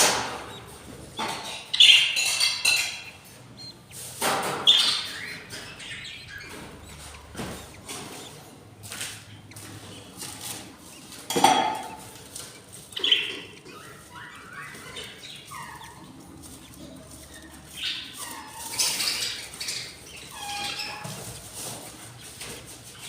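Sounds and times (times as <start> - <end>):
budgies chirping: 0.0 - 23.0.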